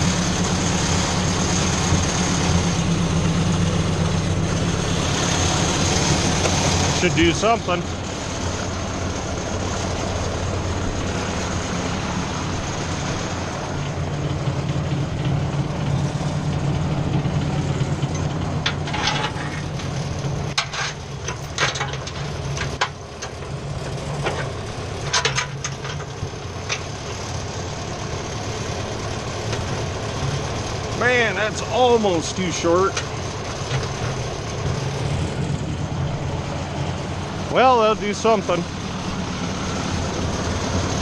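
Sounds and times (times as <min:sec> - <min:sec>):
tractor engine idling: 0:00.0 - 0:41.0
sharp metal clanks: 0:18.1 - 0:19.7.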